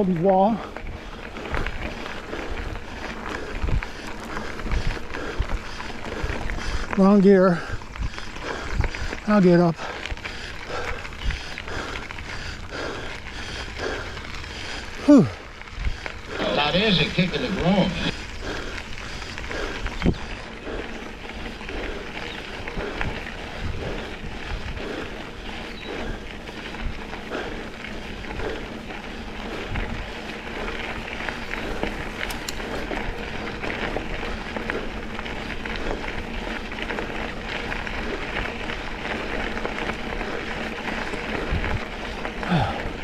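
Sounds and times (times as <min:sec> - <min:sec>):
bike rattling over bumps: 0:00.0 - 0:43.0
bike tyres on gravel: 0:00.0 - 0:43.0
wind on microphone: 0:15.7 - 0:27.1.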